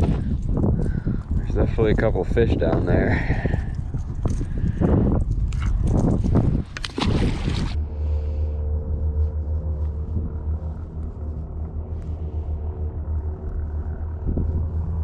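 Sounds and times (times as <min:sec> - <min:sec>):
boat motor rumbling: 0:00.0 - 0:15.0
faint steady hum: 0:00.0 - 0:15.0.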